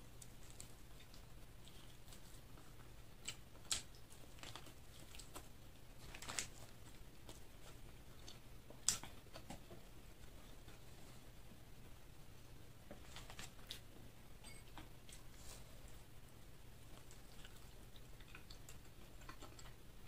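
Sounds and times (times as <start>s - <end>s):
chewing with crunches: 0.1s - 11.0s, 16.8s - 20.0s.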